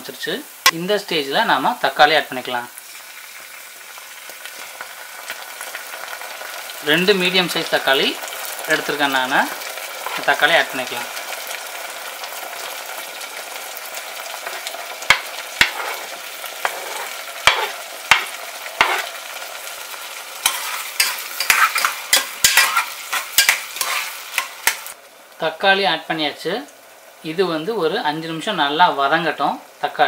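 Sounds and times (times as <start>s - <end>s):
tomatoes sizzling in hot oil: 0.0s - 30.0s
metal spoon scraping a pan: 10.0s - 10.4s, 14.4s - 19.2s, 20.4s - 25.0s.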